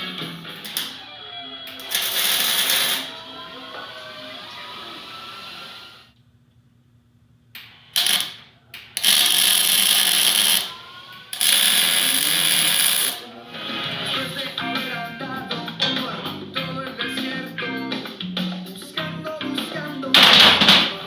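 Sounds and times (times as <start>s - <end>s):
mig welder crackling: 0.0s - 1.0s, 1.7s - 3.2s, 7.5s - 13.3s.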